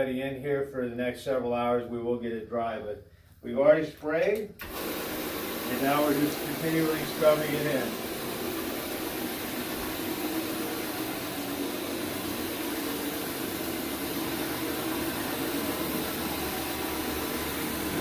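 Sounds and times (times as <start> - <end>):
carpet scrubbing machine humming: 4.6 - 18.0.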